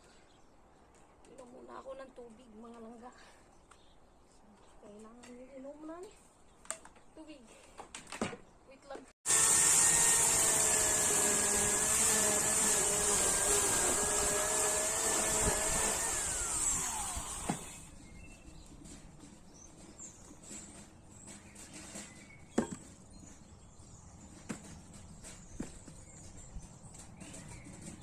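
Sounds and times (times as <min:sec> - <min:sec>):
chainsaw running and winding down: 0:09.3 - 0:17.9.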